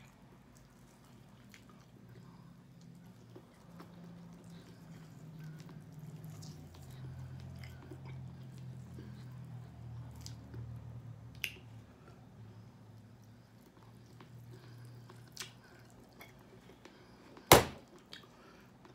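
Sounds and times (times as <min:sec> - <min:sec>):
chewing and mouth smacks: 0:00.0 - 0:12.3, 0:12.9 - 0:18.9
low steady hum: 0:00.0 - 0:18.9.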